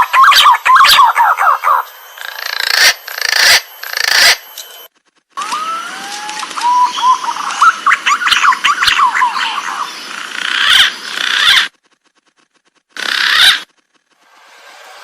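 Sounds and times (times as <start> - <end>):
pigeon whistling call: 0.0 - 2.3, 5.4 - 9.9.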